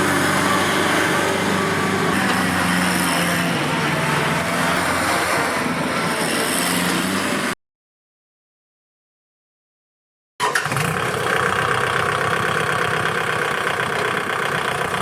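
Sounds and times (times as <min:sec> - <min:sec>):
tractor diesel engine running: 0:00.0 - 0:07.5, 0:10.4 - 0:15.0.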